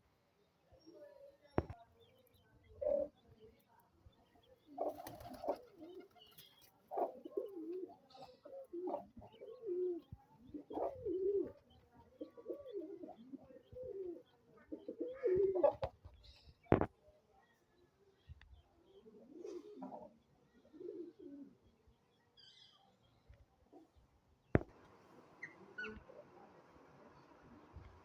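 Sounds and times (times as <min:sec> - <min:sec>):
pigeons cooing: 0:04.8 - 0:15.9, 0:19.2 - 0:21.6.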